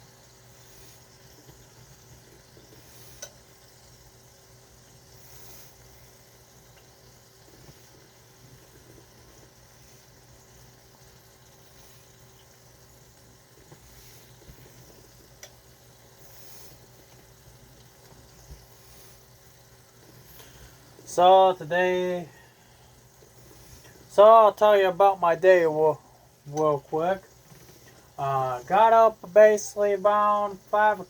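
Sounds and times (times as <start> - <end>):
meatballs sizzling in a pan: 0.0 - 31.0
small ticks: 0.6 - 20.8.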